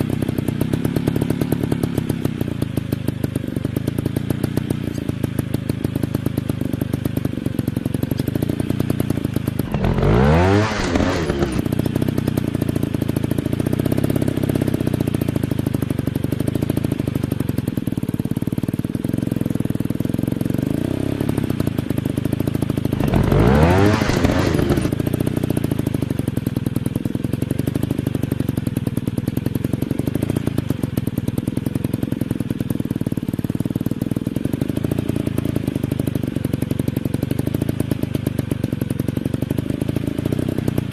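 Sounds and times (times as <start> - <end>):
dirt bike engine puttering: 8.0 - 12.7, 22.9 - 25.0
motocross bike passing by: 9.6 - 11.6, 23.0 - 24.9.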